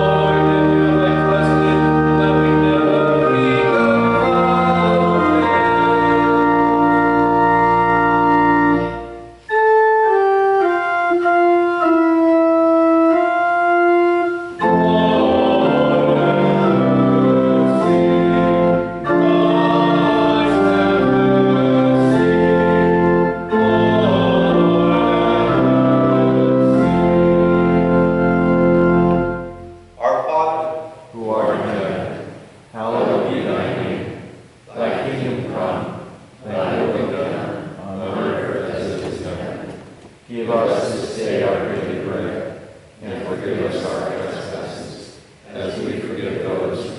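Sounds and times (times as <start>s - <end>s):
church organ playing chords: 0.0s - 34.2s.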